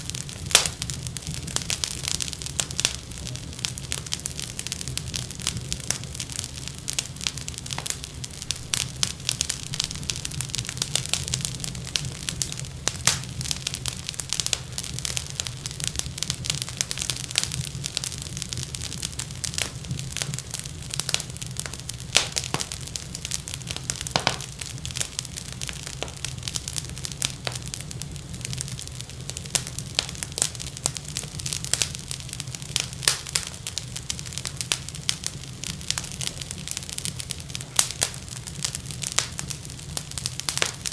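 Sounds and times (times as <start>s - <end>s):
low rumble of flame: 0.0s - 40.9s
wood fire crackling: 0.0s - 40.9s.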